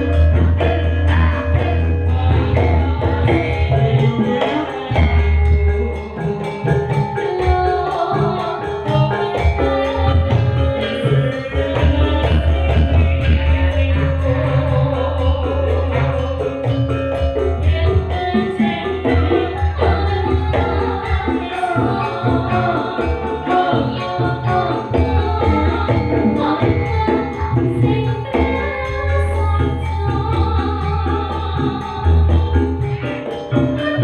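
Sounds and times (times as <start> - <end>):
heavy bass line: 0.0 - 4.2, 11.3 - 18.1
steady drumming: 0.0 - 34.0.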